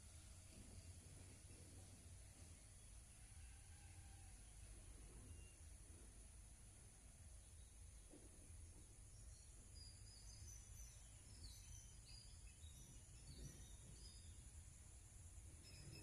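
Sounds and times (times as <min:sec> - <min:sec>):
low background hiss and rumble: 0:00.0 - 0:16.0
faint high bird chirps: 0:05.2 - 0:05.7, 0:09.2 - 0:14.7, 0:15.4 - 0:16.0.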